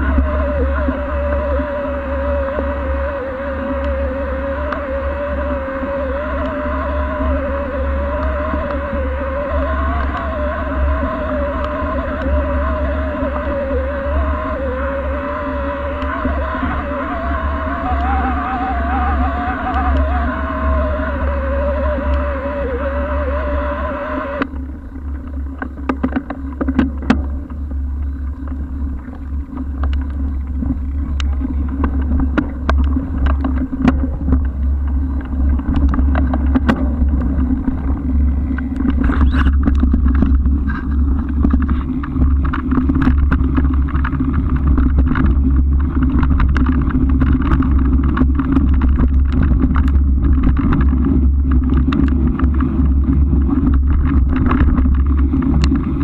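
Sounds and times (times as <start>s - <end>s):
wind buffeting camera: 0.0s - 56.0s
bicycle clicks and rattles: 24.4s - 56.0s.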